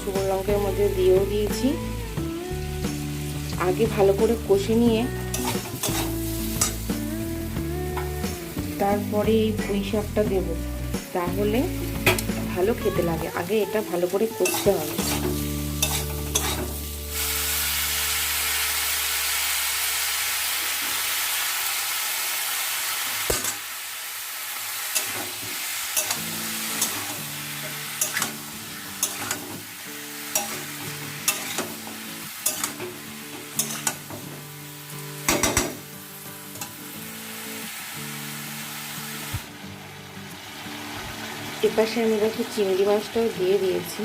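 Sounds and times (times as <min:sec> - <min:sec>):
background music: 0:00.0 - 0:20.0, 0:25.9 - 0:44.0
vegetables sizzling in hot oil: 0:00.0 - 0:44.0
spatula scraping a pan: 0:05.3 - 0:06.8, 0:14.4 - 0:16.8, 0:25.0 - 0:29.6, 0:30.3 - 0:34.2.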